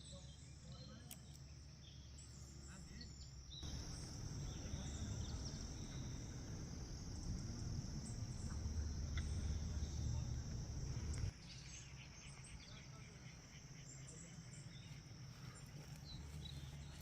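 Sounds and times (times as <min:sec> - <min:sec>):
insects chirping: 0:00.0 - 0:17.0
low rumble: 0:03.7 - 0:11.3.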